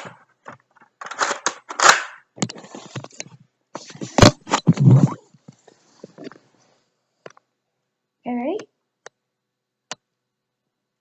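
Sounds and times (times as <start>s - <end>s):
plastic toy rustling and clicking: 0.0s - 3.4s.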